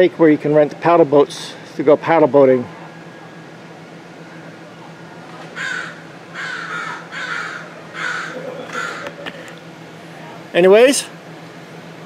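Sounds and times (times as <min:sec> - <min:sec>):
bird calling: 0:05.4 - 0:09.6.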